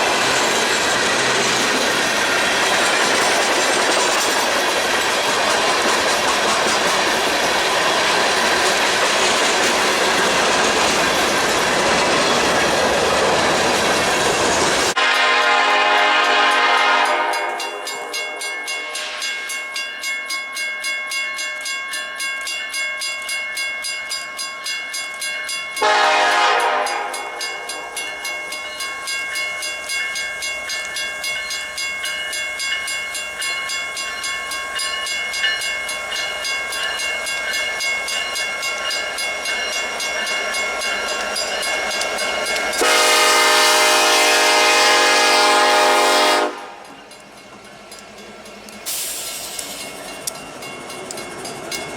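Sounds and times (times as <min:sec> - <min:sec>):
train wheels clicking over rail joints: 0:00.0 - 0:15.0, 0:21.3 - 0:51.9
locomotive horn blast: 0:15.0 - 0:18.4, 0:25.8 - 0:27.4, 0:42.8 - 0:46.9.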